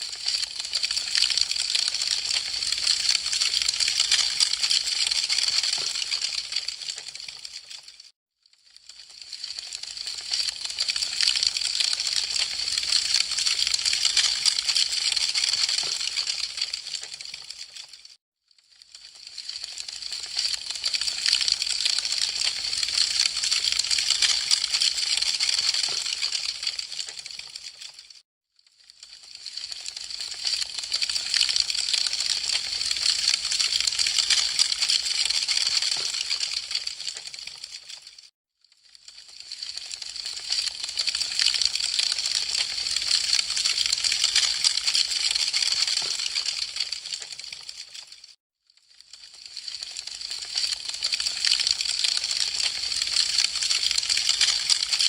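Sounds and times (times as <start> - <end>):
wood fire crackling: 49.6 - 55.0.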